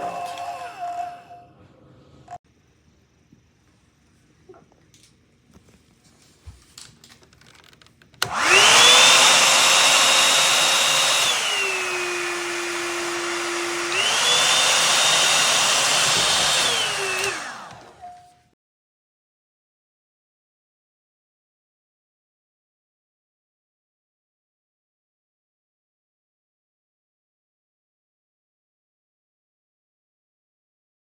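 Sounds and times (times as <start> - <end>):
hot air brush motor whining: 8.2 - 18.4.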